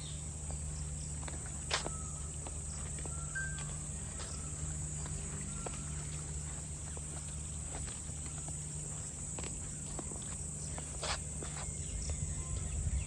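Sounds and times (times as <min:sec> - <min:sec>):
bird chirps: 0:00.0 - 0:08.5
footsteps crunching on path: 0:00.0 - 0:13.0
insects droning: 0:00.0 - 0:13.0.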